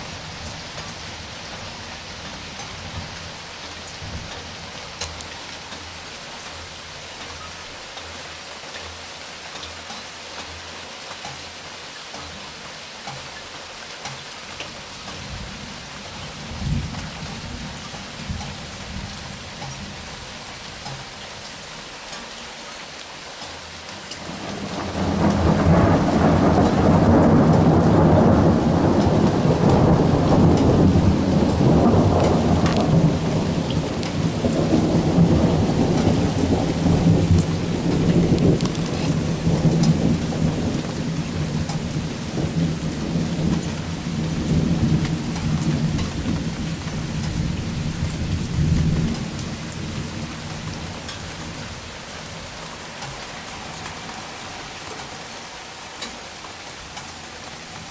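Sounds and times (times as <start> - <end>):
heavy rain: 0.0 - 57.9
raindrops pattering close by: 0.0 - 57.9
rolling thunder: 24.2 - 51.8.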